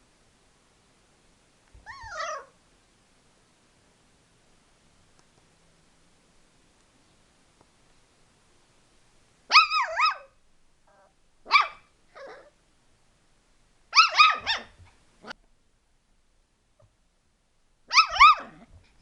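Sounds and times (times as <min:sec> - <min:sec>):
small dog yipping: 0:01.8 - 0:02.6, 0:09.5 - 0:12.6, 0:13.9 - 0:15.4, 0:17.9 - 0:18.8.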